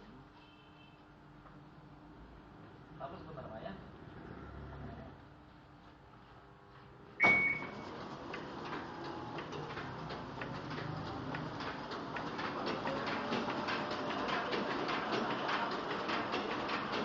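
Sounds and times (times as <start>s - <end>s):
printing press clattering: 7.2s - 17.0s.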